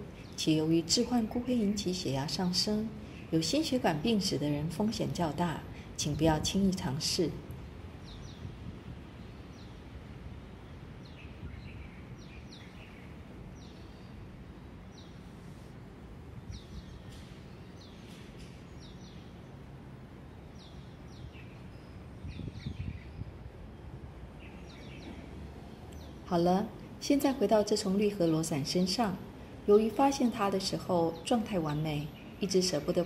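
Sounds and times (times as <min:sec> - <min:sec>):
low outdoor background rumble: 0:00.0 - 0:33.0
small birds chirping: 0:05.8 - 0:15.4, 0:16.3 - 0:23.4, 0:24.2 - 0:29.2.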